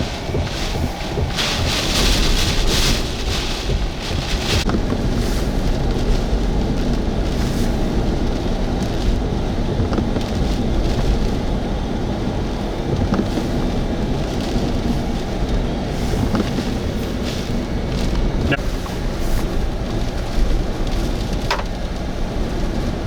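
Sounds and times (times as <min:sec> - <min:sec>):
strong wind and heavy rain: 0:00.0 - 0:23.0.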